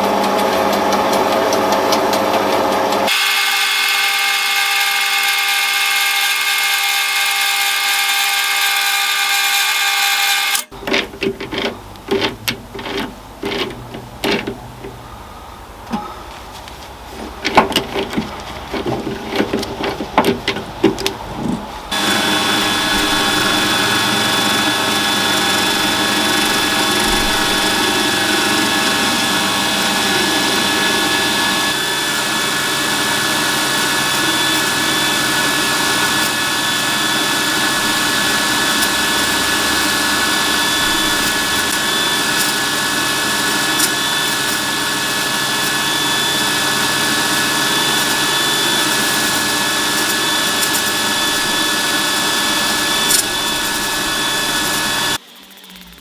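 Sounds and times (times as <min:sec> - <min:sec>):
lathe motor whining: 0:00.0 - 0:10.9, 0:21.4 - 0:56.0
knocks and clatter: 0:17.2 - 0:29.0.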